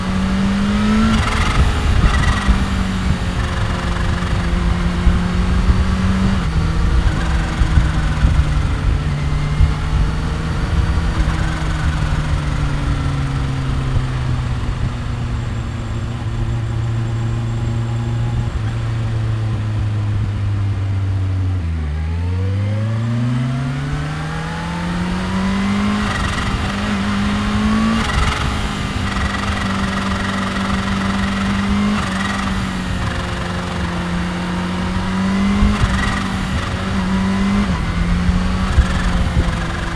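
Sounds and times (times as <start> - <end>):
motorcycle engine and exhaust: 0.0 - 39.9
motorcycle gear change: 0.6 - 16.1, 23.8 - 39.9.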